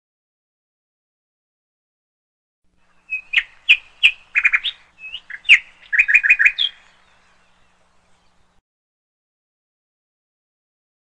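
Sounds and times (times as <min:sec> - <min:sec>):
songbird singing: 0:02.7 - 0:08.6.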